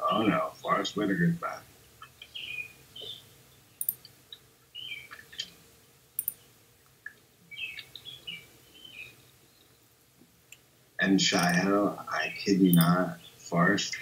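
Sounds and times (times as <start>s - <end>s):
sharp clicks: 3.8s - 4.2s, 6.2s - 6.4s, 12.6s - 13.0s.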